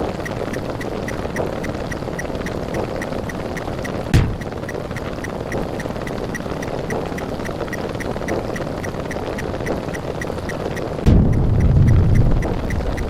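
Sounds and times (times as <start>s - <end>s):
loud hit: 11.1s - 13.0s.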